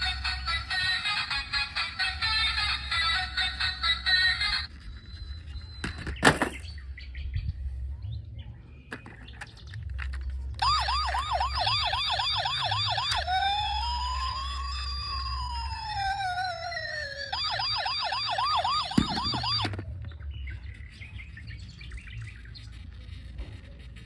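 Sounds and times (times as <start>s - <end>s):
toy electronic siren: 0.0s - 6.1s, 10.6s - 19.8s.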